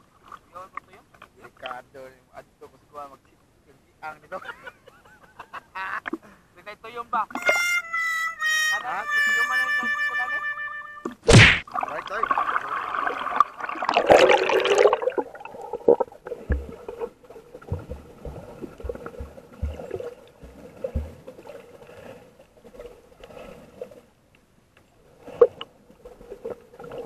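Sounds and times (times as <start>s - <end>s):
water splashing: 11.1s - 24.1s, 25.2s - 27.0s
bubbles: 11.3s - 21.6s
dull underwater knocks: 15.9s - 21.4s.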